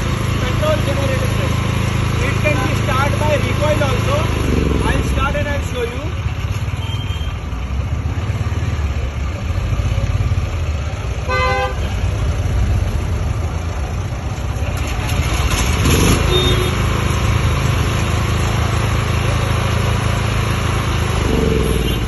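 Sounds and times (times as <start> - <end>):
generator engine running: 0.0 - 6.5, 11.3 - 22.0
vehicle horn honking: 11.3 - 11.8, 16.3 - 16.8
rushing noise: 20.9 - 22.0.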